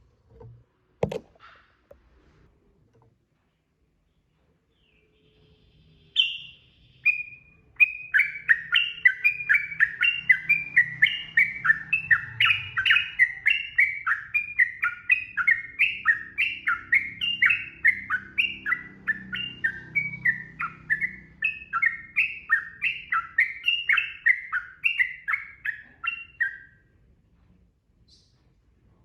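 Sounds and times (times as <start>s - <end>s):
bird singing rapid falling notes: 4.8s - 26.8s.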